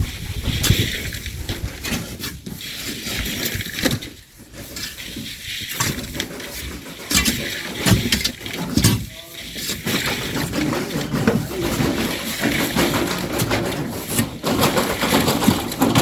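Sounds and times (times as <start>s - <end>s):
gritty sand scraping: 0.0s - 16.0s
hand tools knocking: 6.8s - 16.0s.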